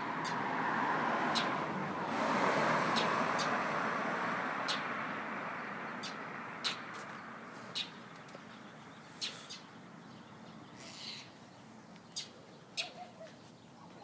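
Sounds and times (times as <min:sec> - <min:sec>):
passing traffic rush: 0:00.0 - 0:13.8
sharp bird chirps: 0:05.9 - 0:13.6.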